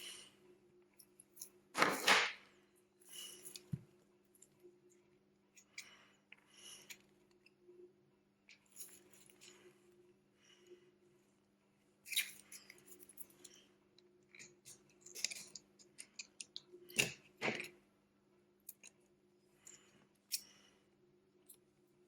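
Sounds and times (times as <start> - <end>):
small tools clicking and tapping: 14.3 - 17.8.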